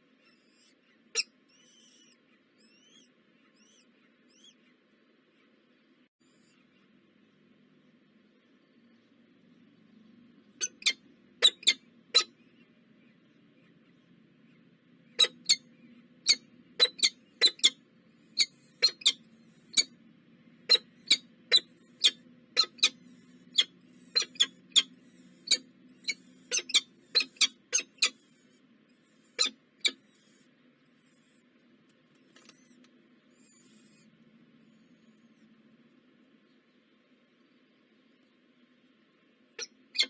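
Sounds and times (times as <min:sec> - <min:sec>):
bird chip calls: 0:00.2 - 0:04.8, 0:10.4 - 0:20.0, 0:20.6 - 0:31.4, 0:39.5 - 0:40.0.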